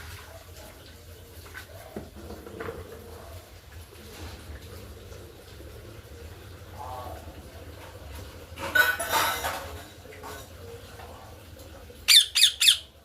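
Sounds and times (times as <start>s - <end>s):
parrot shrill screeches: 12.1s - 12.9s
parrot squawking: 12.1s - 13.0s.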